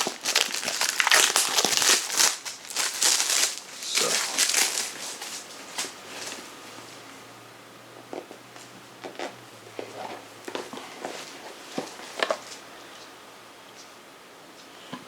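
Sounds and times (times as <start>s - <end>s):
plastic wrapping crinkling: 0.0s - 6.4s.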